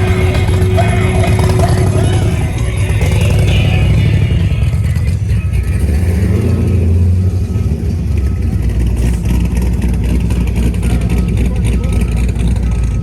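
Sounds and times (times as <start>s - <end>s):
car engine rumbling and revving: 0.0s - 13.0s.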